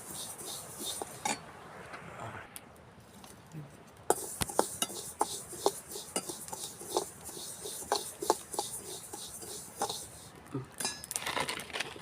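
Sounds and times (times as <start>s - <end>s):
spatula scraping a pan: 0.0s - 1.4s, 4.1s - 10.3s.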